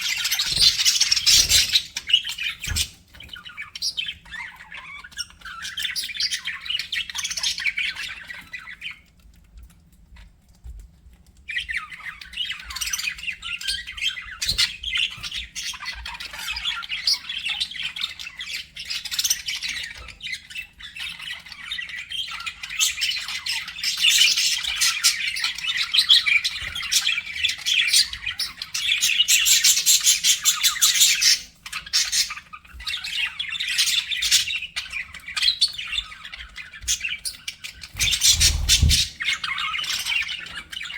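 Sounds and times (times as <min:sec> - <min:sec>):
budgerigars chattering: 0:00.0 - 0:08.8, 0:23.7 - 0:40.9.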